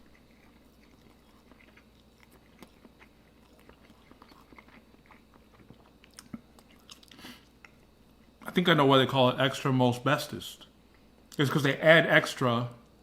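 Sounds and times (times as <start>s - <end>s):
chewing with wet mouth clicks: 0.0s - 8.4s.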